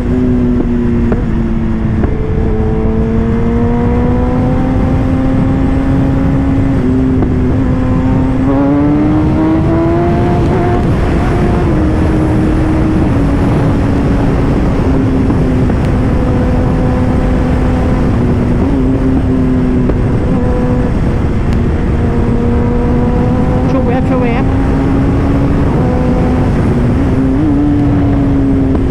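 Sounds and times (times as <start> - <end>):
motorcycle engine running: 0.0 - 28.9
wind noise: 0.0 - 28.9.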